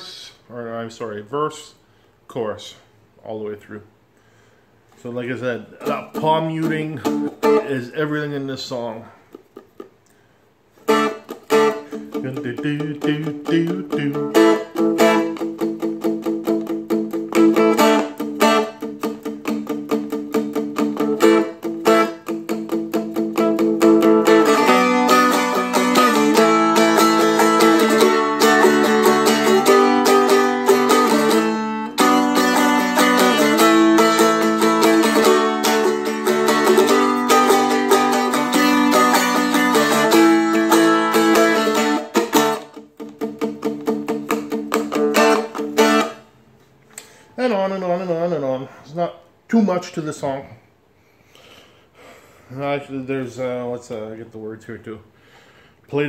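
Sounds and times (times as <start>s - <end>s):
strummed string instrument: 5.7s - 8.0s, 10.8s - 46.3s.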